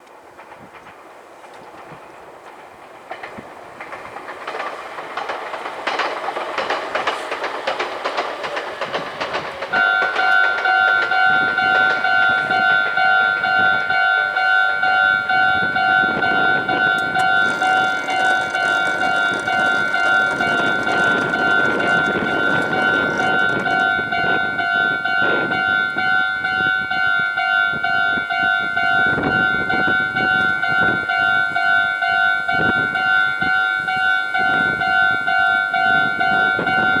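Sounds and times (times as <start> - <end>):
electric train passing: 3.9 - 26.4
train wheel clicks: 15.4 - 26.2.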